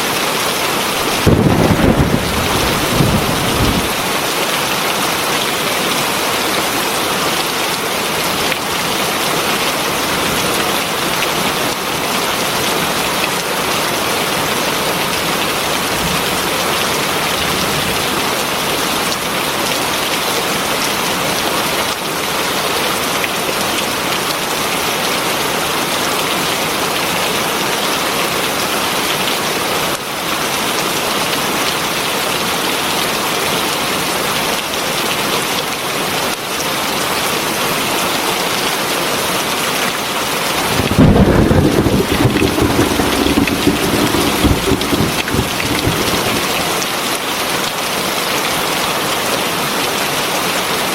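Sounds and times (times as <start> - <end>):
heavy rain falling: 40.5 - 47.1.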